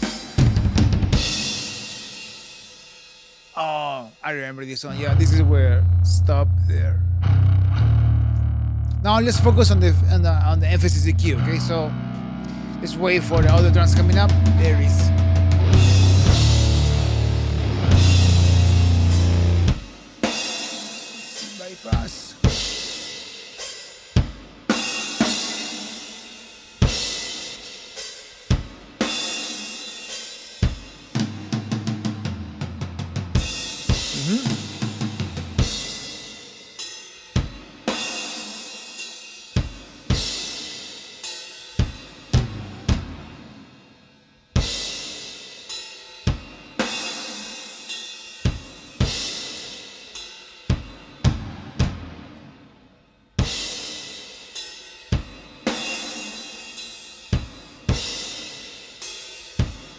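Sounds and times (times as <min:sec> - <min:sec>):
ringing cymbal crashes: 0:14.2 - 0:31.0.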